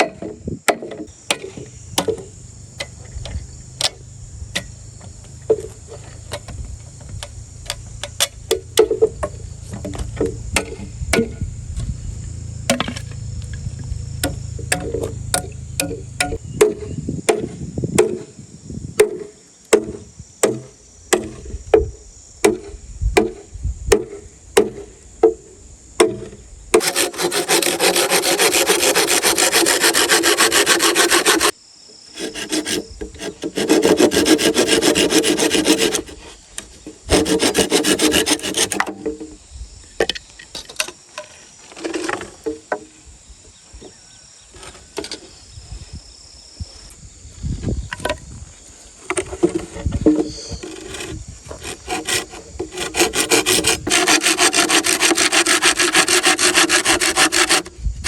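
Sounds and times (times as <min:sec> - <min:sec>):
hand saw cutting bamboo: 0:14.2 - 0:16.4, 0:26.8 - 0:36.4, 0:37.1 - 0:39.0, 0:50.6 - 0:57.7
sharp knocks on bamboo: 0:14.2 - 0:18.3, 0:19.0 - 0:25.4, 0:26.0 - 0:26.9.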